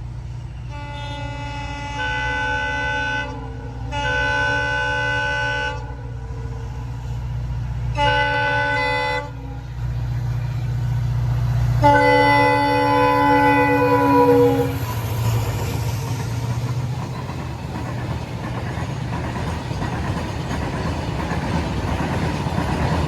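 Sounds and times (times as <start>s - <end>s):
passing train rumble: 0.0s - 23.0s
train horn blasts: 0.5s - 6.8s, 7.8s - 10.9s, 11.6s - 15.2s.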